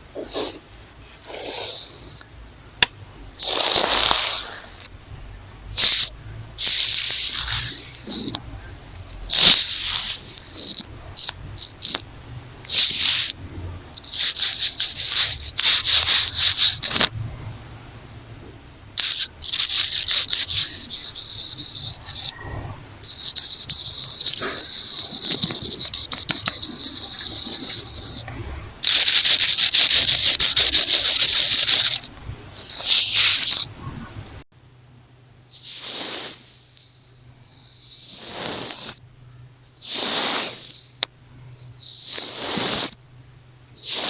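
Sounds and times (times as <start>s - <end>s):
scratchy rustling on microphone: 0.2s - 2.2s, 14.0s - 17.1s, 19.0s - 22.4s, 23.0s - 28.2s, 28.8s - 33.7s, 37.7s - 39.0s, 41.6s - 43.0s.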